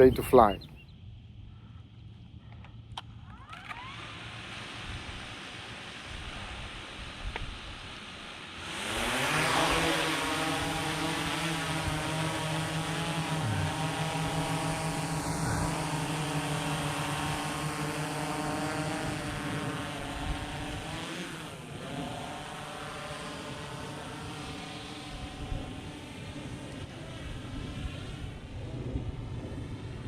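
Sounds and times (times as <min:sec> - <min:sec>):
drone propellers buzzing: 0:08.6 - 0:29.9.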